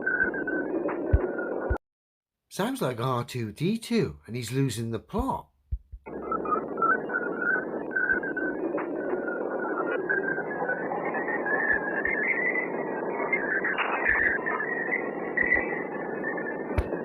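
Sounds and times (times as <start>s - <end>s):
warbling whistle tones: 0.0s - 1.7s, 6.1s - 17.0s.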